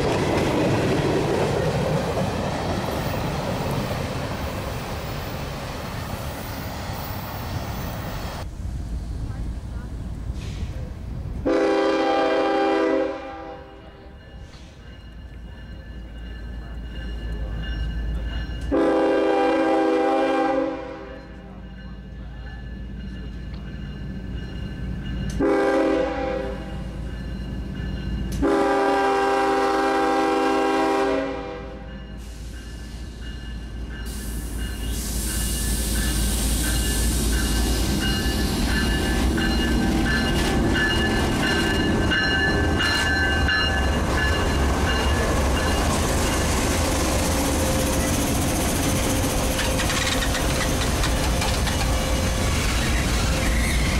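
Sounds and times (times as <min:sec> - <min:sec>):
train rumbling past: 0:00.0 - 0:53.9
locomotive air horn: 0:11.4 - 0:13.7, 0:18.7 - 0:21.2, 0:25.4 - 0:26.8, 0:28.4 - 0:31.9
wheels clicking over rail joints: 0:47.9 - 0:53.9.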